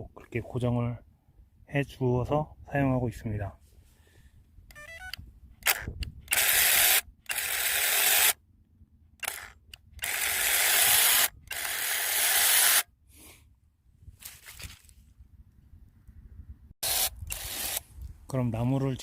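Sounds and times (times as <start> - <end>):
mini chainsaw running in bursts: 9.3 - 12.8.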